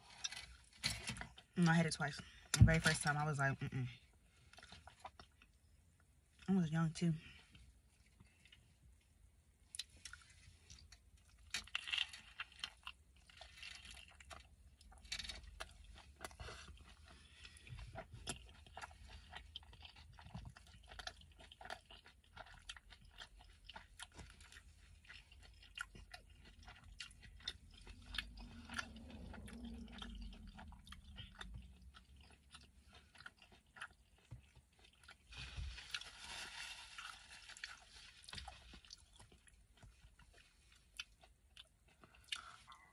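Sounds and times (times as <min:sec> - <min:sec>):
person chewing: 0:04.4 - 0:06.1, 0:09.6 - 0:42.9
wrapper rustling: 0:35.3 - 0:38.8.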